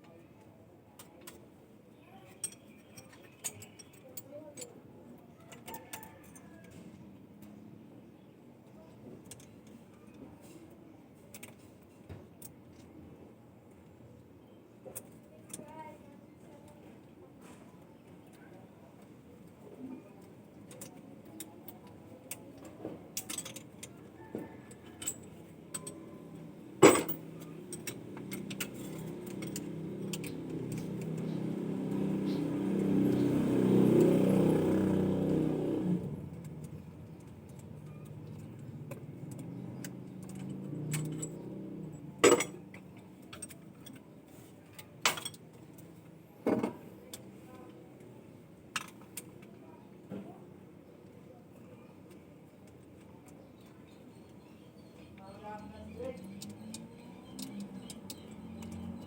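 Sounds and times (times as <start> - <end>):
metallic clinks and knocks: 2.3 - 4.7, 22.6 - 33.3, 36.4 - 44.0, 44.7 - 46.8
engine revving: 28.3 - 36.4.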